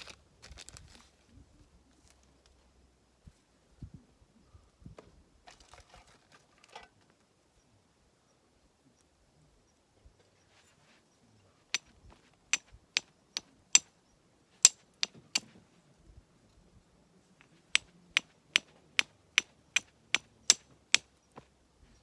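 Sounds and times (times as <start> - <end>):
hatchet splitting firewood: 14.6 - 15.6, 17.4 - 21.5.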